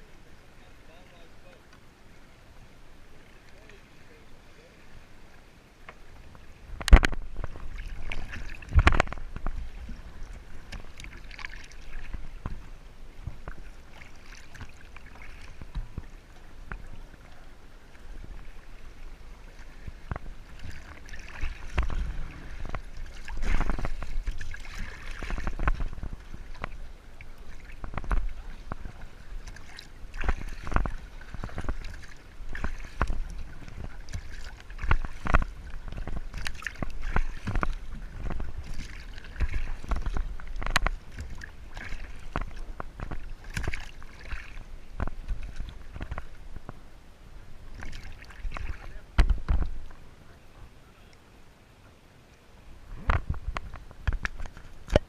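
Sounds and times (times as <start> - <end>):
low steady rumble: 0.0 - 55.0
water splashing against kayak: 0.0 - 55.0.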